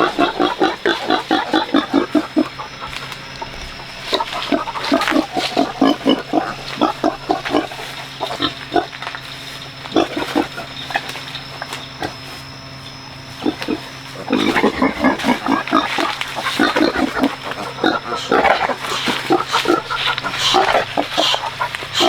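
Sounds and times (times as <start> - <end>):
pigs grunting and squealing: 0.0 - 12.6, 13.2 - 22.0
steady low hum: 0.0 - 22.0.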